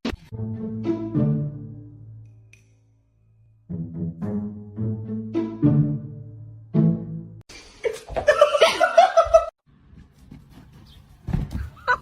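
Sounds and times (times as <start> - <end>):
sustained musical notes: 0.3 - 2.6, 3.6 - 7.4
high-pitched laughter: 11.7 - 12.0.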